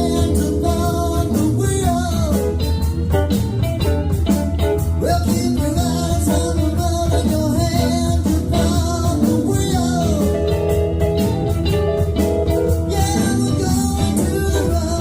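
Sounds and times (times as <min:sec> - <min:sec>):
person singing: 0:00.0 - 0:02.8, 0:04.9 - 0:10.6, 0:12.7 - 0:15.0
live blues-rock band: 0:00.0 - 0:15.0.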